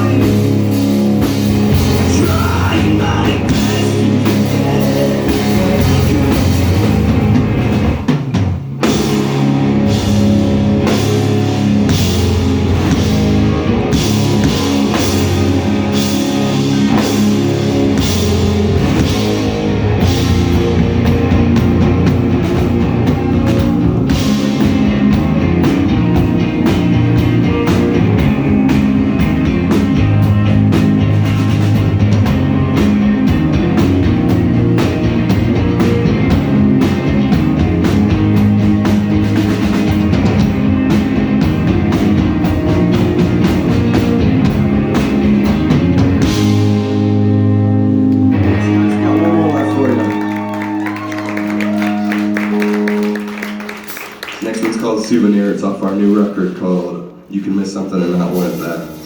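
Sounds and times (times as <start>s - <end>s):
person singing: 0.0s - 0.6s, 1.9s - 6.8s
distorted electric guitars: 0.0s - 55.1s
drum kit: 0.0s - 56.2s
bass guitar: 0.0s - 57.3s.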